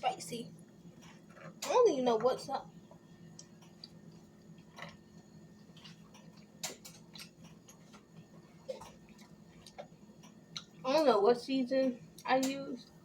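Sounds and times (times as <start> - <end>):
mouth clicks and smacks eating: 3.3 - 10.8.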